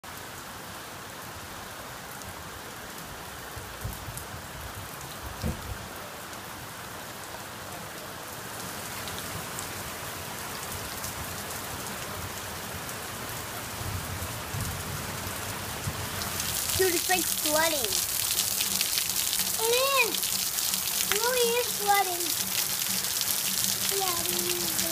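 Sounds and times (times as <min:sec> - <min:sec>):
close rain splats: 0:00.0 - 0:24.9
heavy rain on roof and pavement: 0:00.0 - 0:24.9
dull thump: 0:05.4 - 0:05.8.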